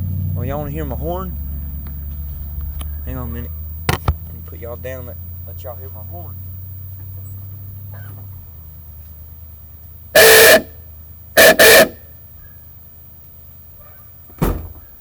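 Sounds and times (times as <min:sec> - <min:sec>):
loud thump: 0:03.8 - 0:04.3, 0:14.3 - 0:14.9
car horn honking: 0:10.1 - 0:10.8, 0:11.4 - 0:12.1.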